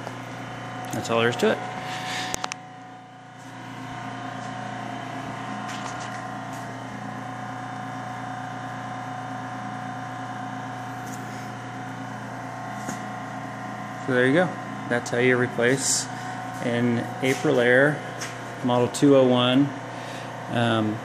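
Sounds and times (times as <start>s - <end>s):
blower humming: 0.0s - 21.0s.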